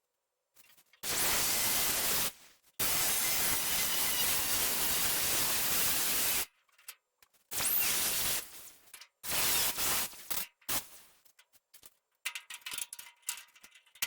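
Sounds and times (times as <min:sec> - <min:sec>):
plasma cutter hissing: 0:01.0 - 0:06.5, 0:07.5 - 0:11.0.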